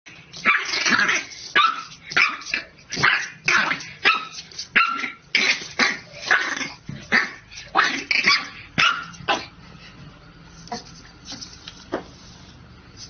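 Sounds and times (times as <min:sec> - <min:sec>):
dog barking: 0:07.2 - 0:09.5.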